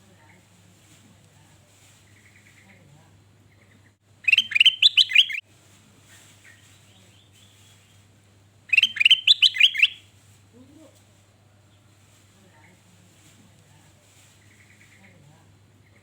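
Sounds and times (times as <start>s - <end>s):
bird singing bright notes: 4.2s - 5.4s, 8.7s - 10.0s.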